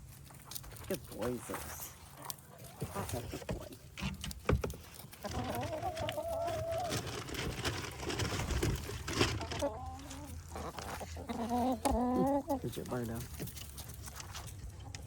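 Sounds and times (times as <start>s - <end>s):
hens clucking and calling: 2.0s - 13.9s.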